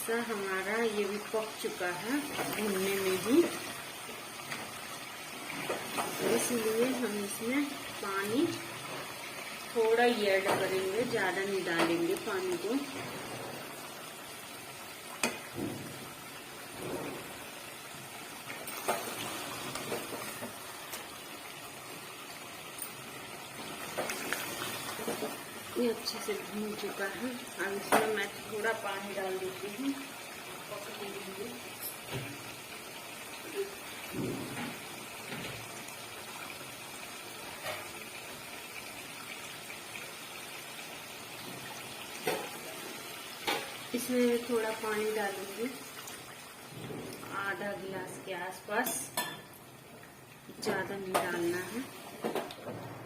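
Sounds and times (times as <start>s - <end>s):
food sizzling in oil: 0.0s - 52.5s
water running: 0.0s - 53.0s.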